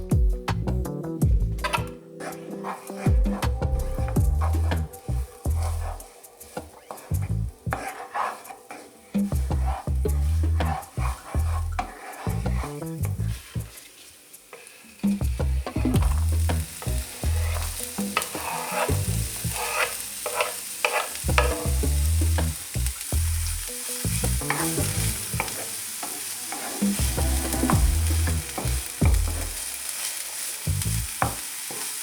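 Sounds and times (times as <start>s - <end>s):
food sizzling in oil: 1.6s - 32.0s
utensil scraping in pan: 1.6s - 32.0s.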